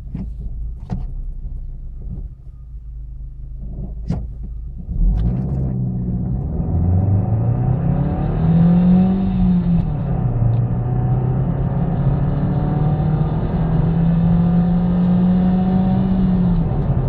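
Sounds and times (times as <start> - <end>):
car engine idling: 0.0 - 4.9
car accelerating at full throttle: 4.8 - 17.0.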